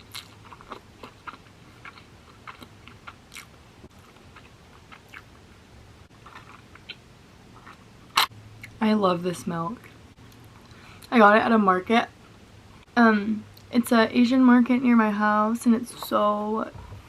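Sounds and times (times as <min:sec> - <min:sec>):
person chewing close up: 0:00.0 - 0:05.4, 0:06.1 - 0:08.8.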